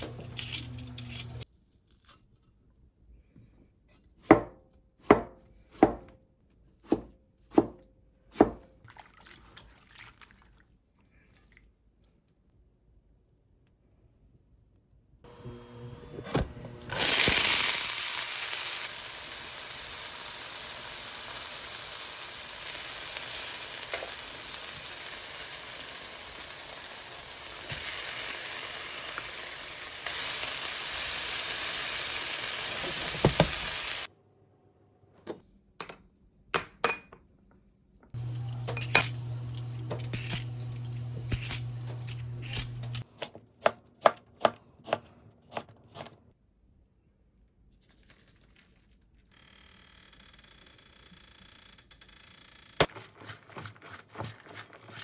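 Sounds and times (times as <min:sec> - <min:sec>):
kitchen utensils clinking: 0:00.0 - 0:01.4, 0:38.2 - 0:43.1
food sizzling in a pan: 0:16.9 - 0:34.1.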